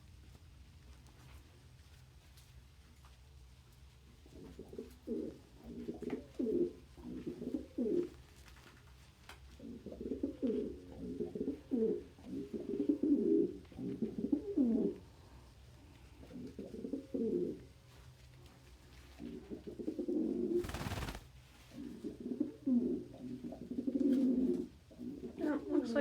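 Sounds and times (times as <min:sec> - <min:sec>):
pigeons cooing: 0:04.4 - 0:08.1, 0:09.6 - 0:15.0, 0:16.2 - 0:17.7, 0:19.2 - 0:21.2, 0:21.8 - 0:25.4.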